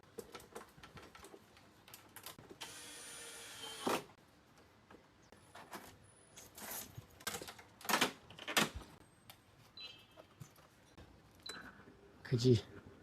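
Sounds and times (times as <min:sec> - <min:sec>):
clicks and handling of parts: 0:00.0 - 0:02.6, 0:04.5 - 0:09.5
small motor whirring: 0:02.6 - 0:03.9.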